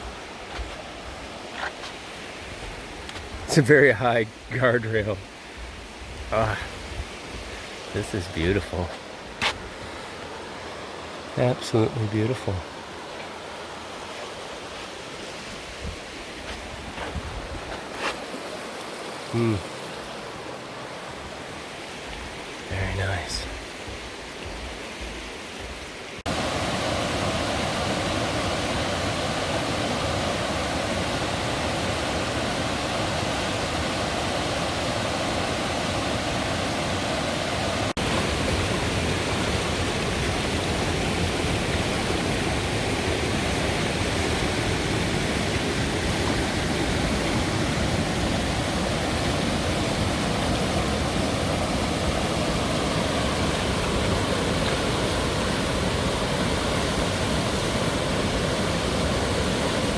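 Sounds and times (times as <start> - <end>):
river rapids roaring: 22.7 - 23.4, 25.9 - 59.9.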